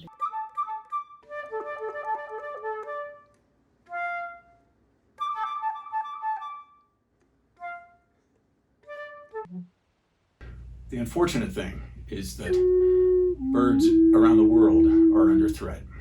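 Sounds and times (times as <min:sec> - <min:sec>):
flute playing quick notes: 0:12.4 - 0:15.7.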